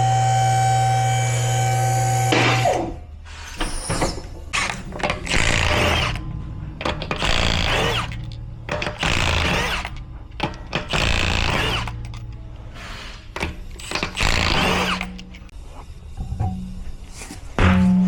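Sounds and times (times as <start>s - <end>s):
low hum: 5.0s - 10.8s, 14.6s - 18.0s.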